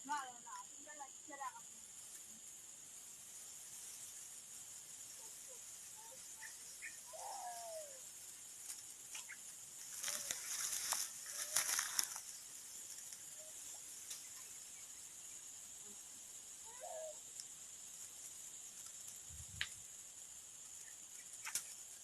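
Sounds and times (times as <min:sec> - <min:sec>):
insects droning: 0:00.0 - 0:22.0
rustling noise: 0:08.6 - 0:13.4.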